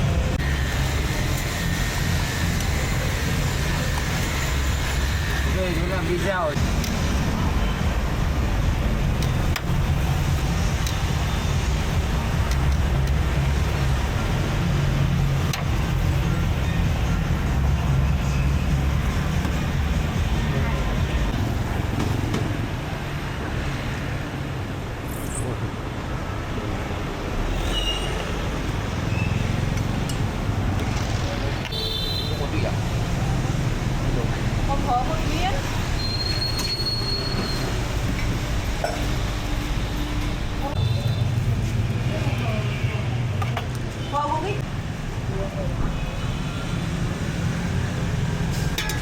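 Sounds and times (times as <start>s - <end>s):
vehicle engines running: 0.0s - 23.6s, 28.4s - 31.7s.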